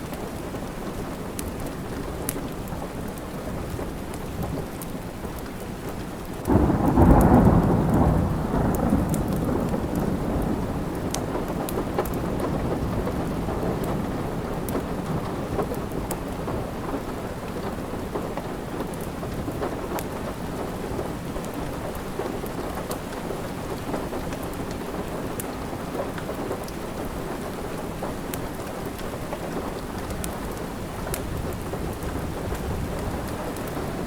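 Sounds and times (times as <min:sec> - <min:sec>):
steady rain: 0:00.0 - 0:34.0
wood fire crackling and popping: 0:08.7 - 0:13.9.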